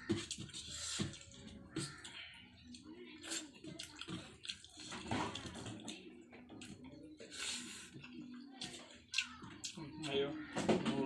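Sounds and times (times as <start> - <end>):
person chewing and lip-smacking: 0.1 - 6.8, 8.6 - 10.2.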